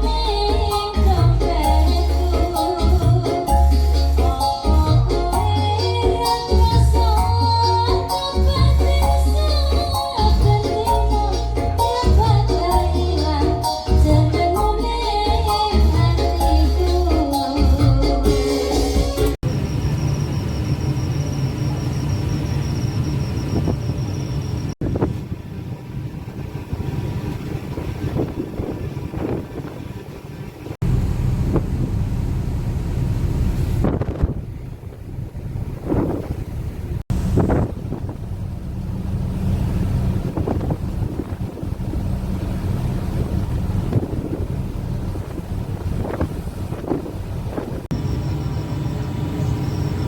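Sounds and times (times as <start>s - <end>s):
ship engines humming: 0.0s - 50.0s
wind: 0.0s - 50.0s
sea noise: 14.8s - 50.0s
wind buffeting microphone: 23.3s - 47.9s.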